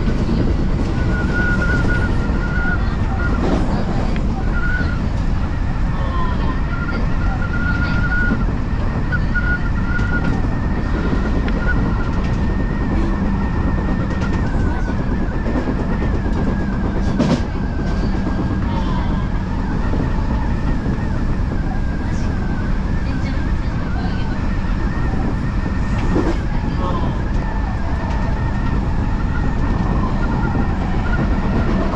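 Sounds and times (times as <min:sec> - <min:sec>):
train wheels rumbling on rails: 0:00.0 - 0:31.9.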